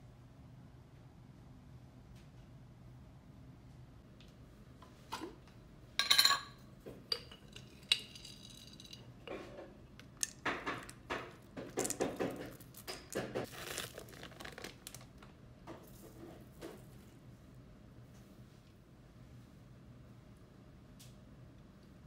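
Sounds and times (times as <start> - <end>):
dishes and utensils clinking: 6.0 - 9.7.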